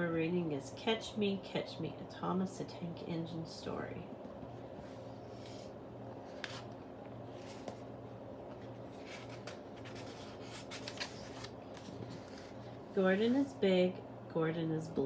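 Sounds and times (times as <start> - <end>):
low steady hum: 0.0 - 15.0
paper rustling: 7.3 - 7.9, 8.5 - 13.5.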